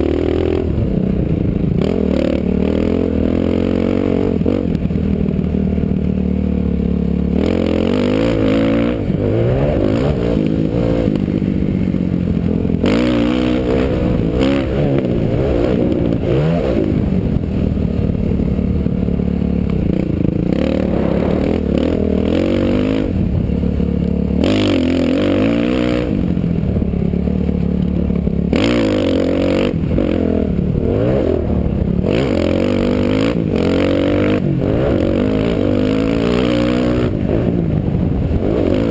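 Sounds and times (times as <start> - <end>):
dirt bike engine revving: 0.0 - 38.9
wind noise on microphone: 8.9 - 38.9.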